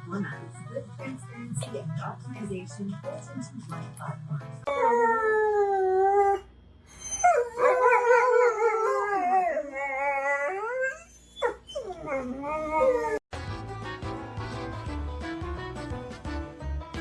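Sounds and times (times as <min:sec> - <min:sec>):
dog howling: 0:04.7 - 0:13.2.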